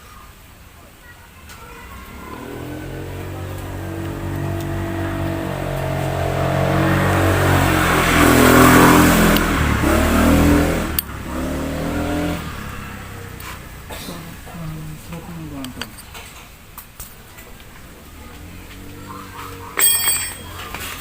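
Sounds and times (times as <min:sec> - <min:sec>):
engine running and revving: 0:01.9 - 0:14.0, 0:17.8 - 0:21.0.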